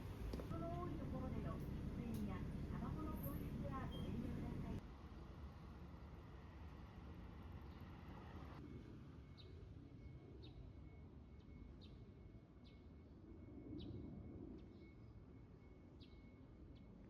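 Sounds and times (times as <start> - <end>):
low steady rumble: 0.0 - 4.8.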